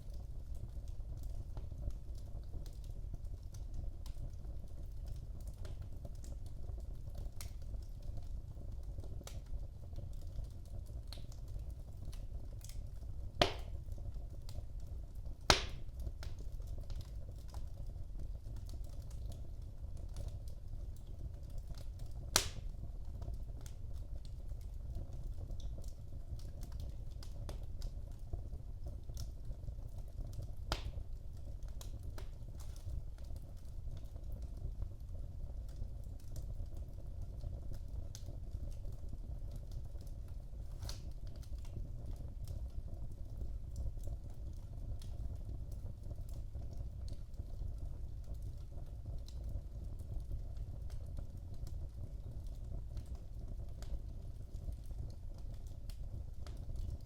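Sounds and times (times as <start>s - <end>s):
fire rumbling: 0.0s - 57.0s
small fire crackles: 0.0s - 57.0s
sharp fire pops: 13.3s - 14.0s, 15.4s - 16.9s, 22.3s - 22.7s, 40.7s - 41.2s.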